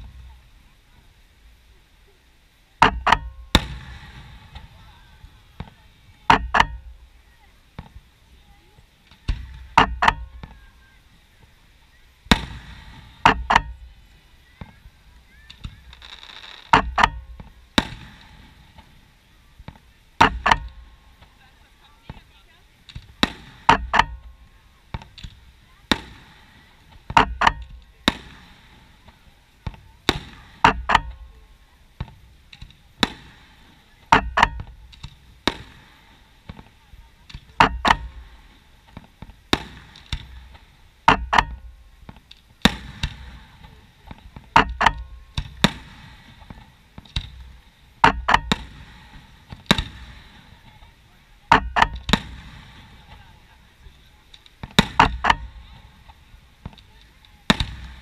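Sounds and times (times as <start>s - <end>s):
fireworks bursting with sharp bangs: 0.0s - 58.0s.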